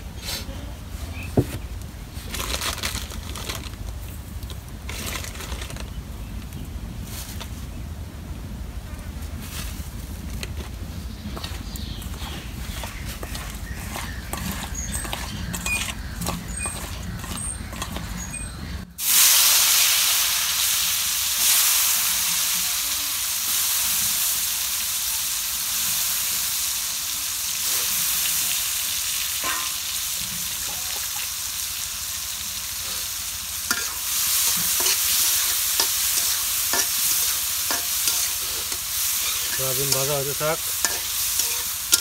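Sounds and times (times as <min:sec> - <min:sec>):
food sizzling in hot oil: 0:19.0 - 0:42.0.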